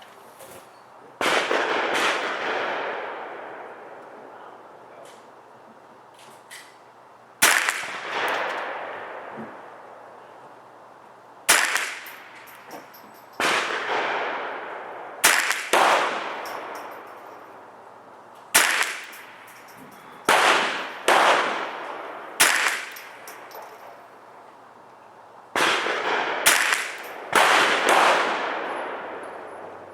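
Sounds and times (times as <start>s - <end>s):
rifle shots with echo: 1.2s - 4.0s, 7.4s - 10.0s, 11.5s - 17.8s, 18.5s - 24.0s, 25.6s - 29.9s.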